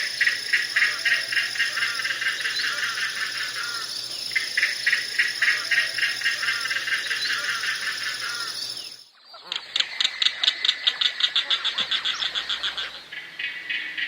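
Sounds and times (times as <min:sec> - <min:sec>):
bird rattling clicking calls: 0:00.0 - 0:09.0
steady high buzz: 0:00.0 - 0:09.0.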